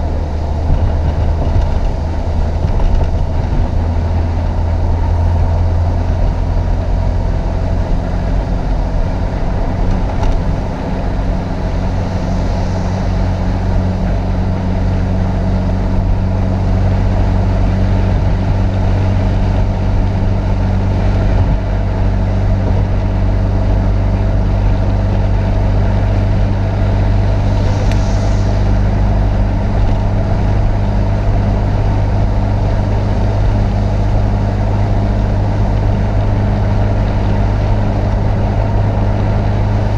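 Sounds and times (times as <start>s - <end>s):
car engine droning: 0.0s - 39.9s
brief hiss: 27.4s - 28.8s.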